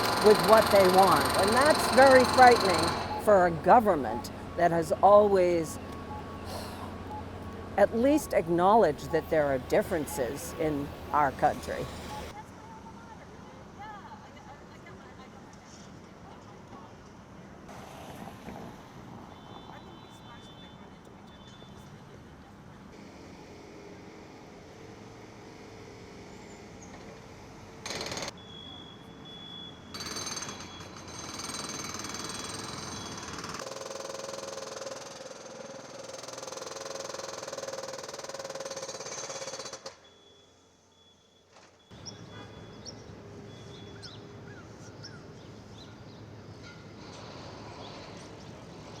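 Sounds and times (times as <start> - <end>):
jackhammer-like machine noise: 0.0 - 12.4, 27.8 - 28.3, 29.9 - 40.2.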